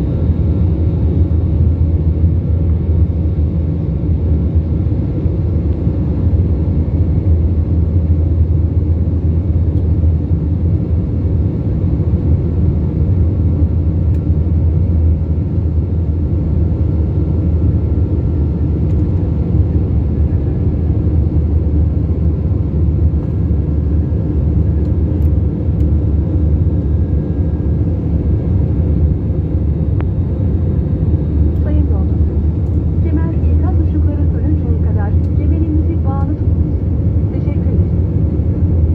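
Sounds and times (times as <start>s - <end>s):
jet engine and airflow rumble: 0.0s - 38.9s
faint steady hum: 13.6s - 38.9s.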